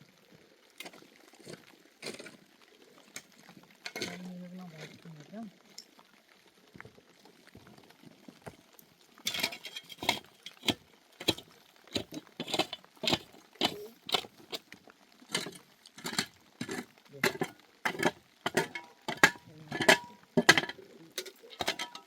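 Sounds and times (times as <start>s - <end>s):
metal utensil clinking on cookware: 15.3s - 22.0s.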